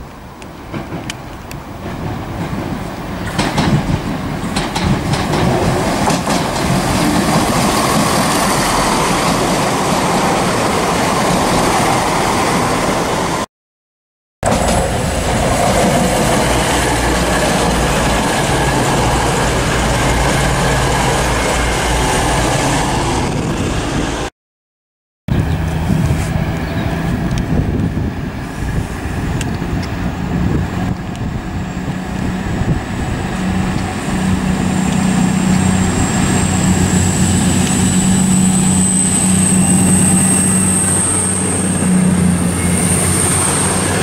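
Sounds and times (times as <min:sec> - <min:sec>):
train wheels clicking over rail joints: 0:00.6 - 0:09.9, 0:14.5 - 0:20.0
diesel train engine low hum: 0:14.5 - 0:24.2, 0:25.3 - 0:44.0.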